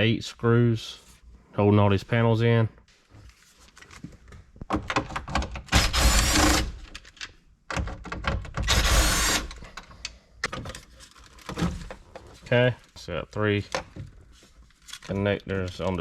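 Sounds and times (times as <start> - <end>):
plastic panels clicking and knocking: 4.6 - 5.8, 6.9 - 8.8
cordless drill driving screws: 5.7 - 6.8, 8.6 - 9.6.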